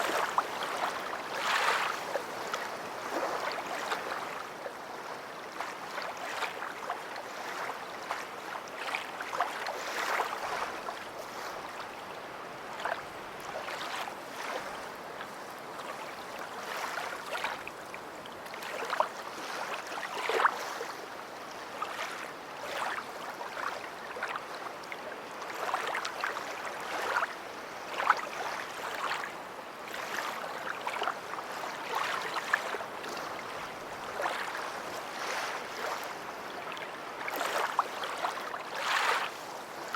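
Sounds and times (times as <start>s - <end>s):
small waves lapping on beach: 0.0s - 39.9s.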